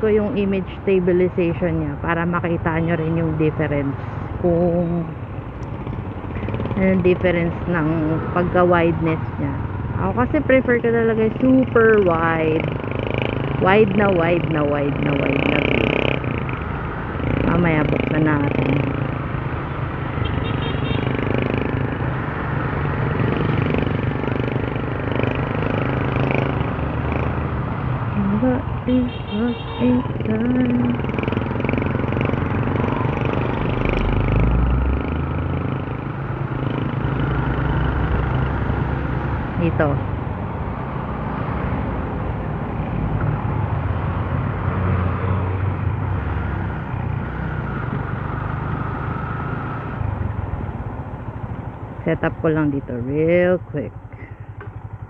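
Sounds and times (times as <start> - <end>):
road and wind noise: 0.0 - 55.0
motorcycle engine droning: 2.0 - 40.2, 41.8 - 55.0
motorcycle engine running: 4.5 - 8.2, 9.9 - 19.2, 28.2 - 34.3, 52.8 - 55.0.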